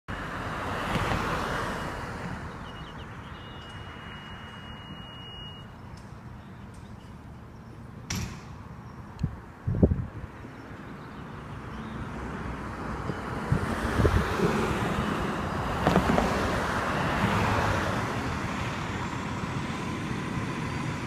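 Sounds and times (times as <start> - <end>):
steady high beep: 2.7 - 5.8.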